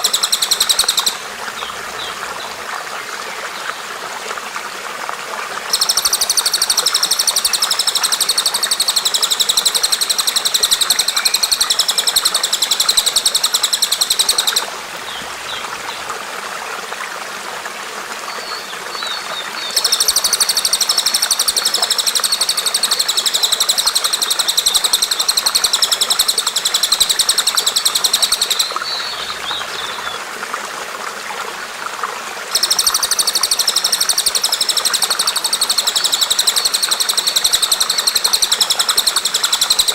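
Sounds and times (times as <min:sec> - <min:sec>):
bird chattering call: 0:00.0 - 0:01.2, 0:05.7 - 0:14.7, 0:19.6 - 0:30.2, 0:32.5 - 0:39.9
water trickling: 0:00.0 - 0:39.9.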